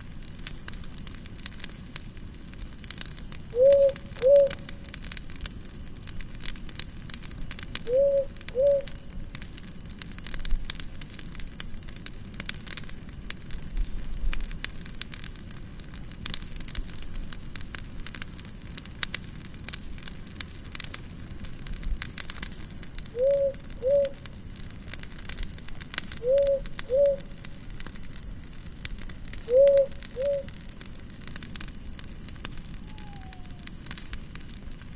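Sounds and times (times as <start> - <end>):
campfire crackling and popping: 0.0 - 34.9
high chirps: 0.4 - 1.8, 13.8 - 14.2, 16.8 - 19.1.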